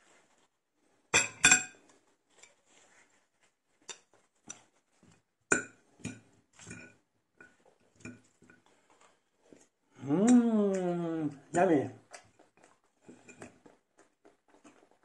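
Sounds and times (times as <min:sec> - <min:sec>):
cutlery clinking against a dish: 0:01.2 - 0:01.8.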